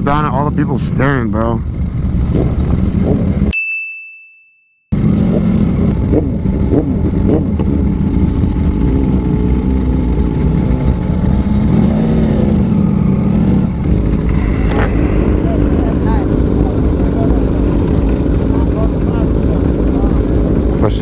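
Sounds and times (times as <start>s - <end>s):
motorcycle engine running: 0.0s - 3.5s, 5.0s - 21.0s
wind rushing over microphone: 0.0s - 3.5s, 10.5s - 21.0s.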